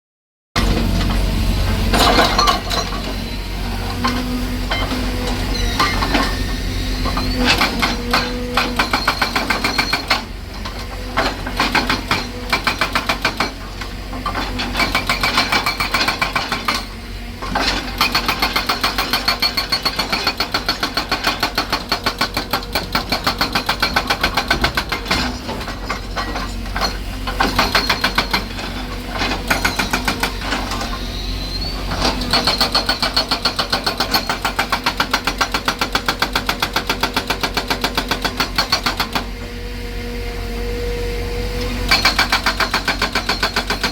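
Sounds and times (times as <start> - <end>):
excavator engine running: 0.6 - 43.9
hydraulic breaker hammering: 7.0 - 16.9, 17.5 - 31.0, 31.9 - 39.3, 41.8 - 43.9.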